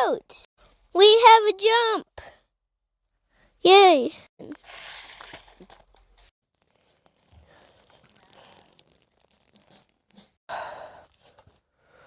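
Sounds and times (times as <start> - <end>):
crunching and scraping in dirt: 4.6 - 10.4.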